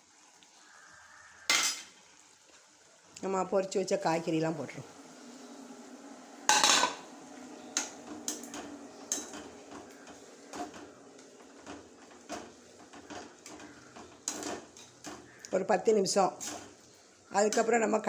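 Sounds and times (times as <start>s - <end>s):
metal pots and spoon clattering: 1.5s - 1.9s, 6.5s - 7.0s, 7.7s - 15.6s, 16.3s - 16.8s, 17.4s - 17.9s.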